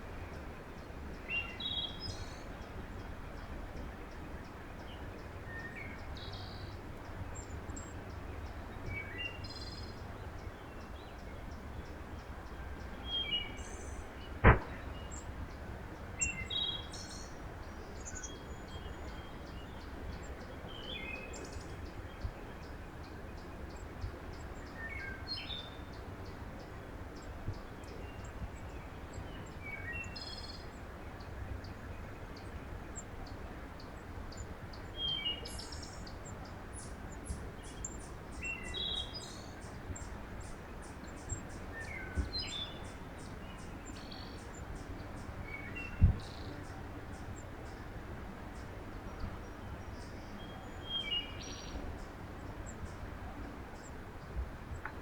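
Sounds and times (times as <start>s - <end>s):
songbirds chirping: 0.0s - 55.0s
sharp knock: 14.4s - 14.9s.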